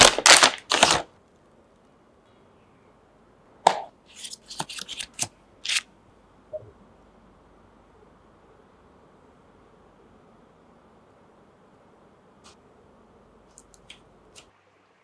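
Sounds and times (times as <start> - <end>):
rustling snaps: 0.0 - 1.9, 13.5 - 14.5.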